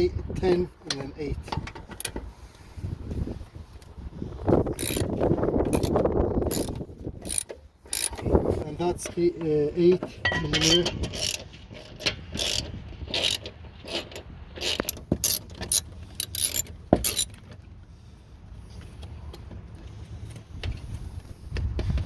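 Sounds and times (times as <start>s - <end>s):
ratchet wrench clicking: 4.7s - 8.3s, 10.6s - 17.4s
tools and metal parts clinking: 4.8s - 17.6s.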